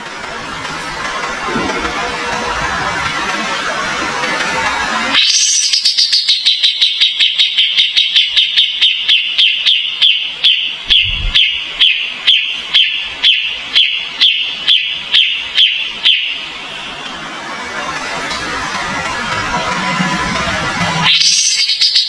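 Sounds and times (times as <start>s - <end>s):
songbird call notes: 5.2s - 16.4s, 21.1s - 22.0s.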